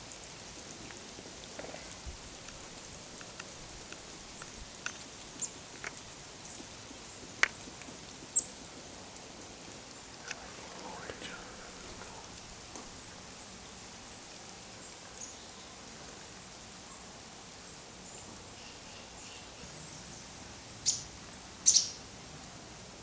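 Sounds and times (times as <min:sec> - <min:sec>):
faint steady hiss: 0:00.0 - 0:23.0
small birds chipping: 0:00.2 - 0:22.0.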